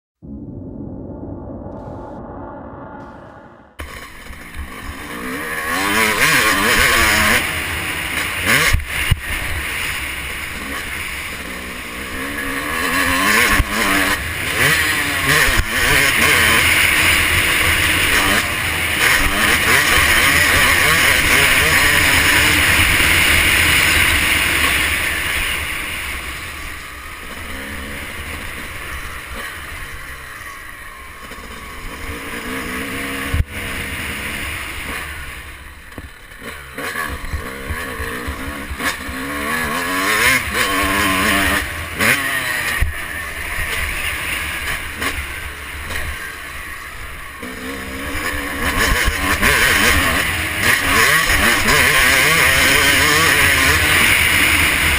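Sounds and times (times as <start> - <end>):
wind noise on camera: 0.2 - 4.0.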